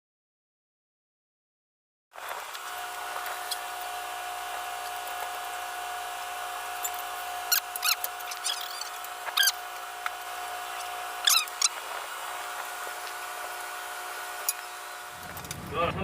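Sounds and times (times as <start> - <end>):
boat engine humming: 2.2 - 16.0
short high squeaks: 6.8 - 9.9, 10.6 - 12.1.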